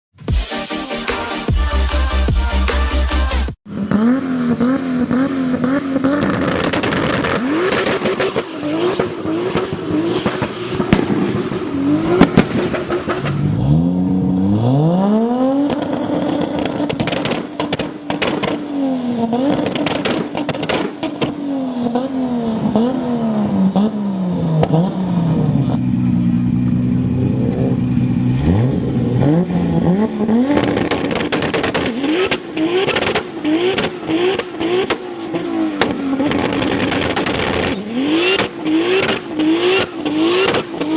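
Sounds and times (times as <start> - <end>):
car engine revving: 0.9 - 40.9
exhaust pops and crackles: 6.0 - 13.5, 15.6 - 18.7, 19.3 - 21.4, 30.1 - 40.9.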